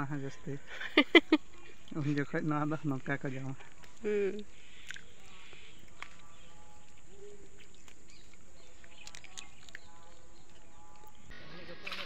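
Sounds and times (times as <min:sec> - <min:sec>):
faint bird chirps: 0:03.9 - 0:12.0.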